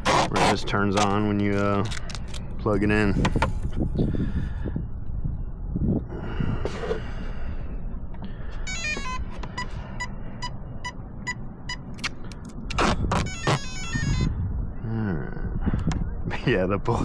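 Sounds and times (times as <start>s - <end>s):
short beeps: 8.7s - 12.0s.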